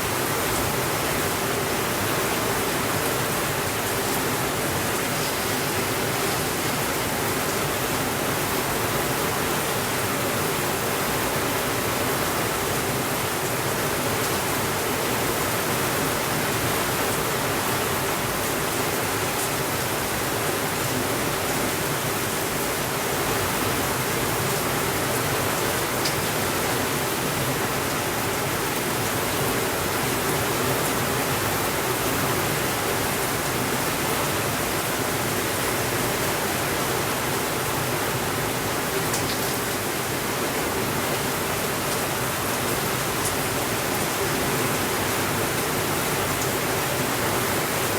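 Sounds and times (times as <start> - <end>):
steady rainfall hiss: 0.0 - 47.9.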